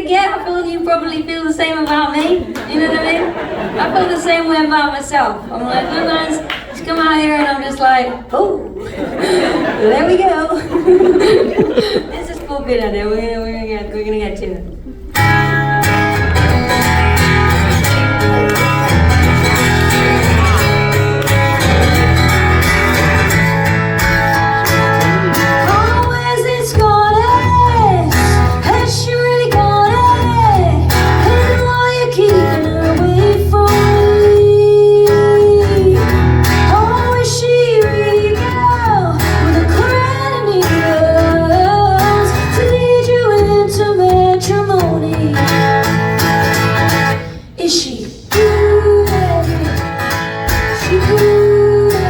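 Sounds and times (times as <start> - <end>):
bass guitar: 11.0 - 37.2
strummed guitar chords: 14.6 - 47.3, 48.3 - 52.0
woman singing: 25.6 - 45.9, 47.6 - 49.9, 50.5 - 52.0.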